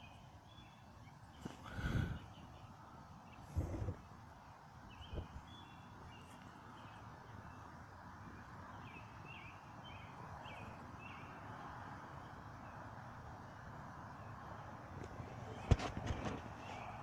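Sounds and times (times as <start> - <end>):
bird chirping: 0.0 - 4.0, 4.8 - 7.7, 8.3 - 12.8
faint wind: 0.0 - 17.0.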